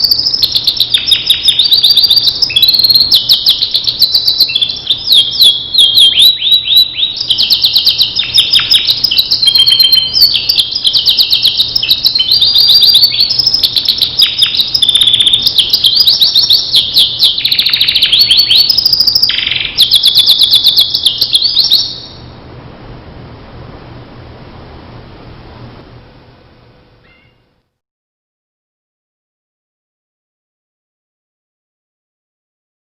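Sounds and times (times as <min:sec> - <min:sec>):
canary singing trills: 0:00.0 - 0:22.3, 0:27.0 - 0:27.5.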